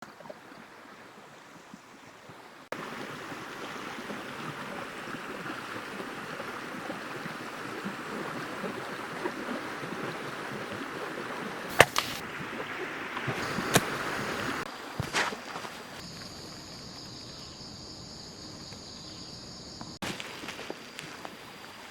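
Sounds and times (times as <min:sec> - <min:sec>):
stream running: 0:00.0 - 0:17.4, 0:20.0 - 0:21.9
sharp snap: 0:11.7 - 0:12.2.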